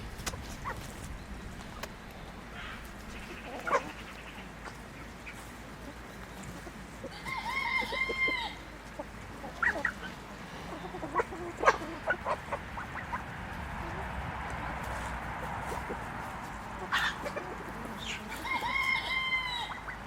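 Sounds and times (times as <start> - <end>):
chickens clucking: 0.0 - 20.0
chicken pitched call notes: 15.6 - 20.0.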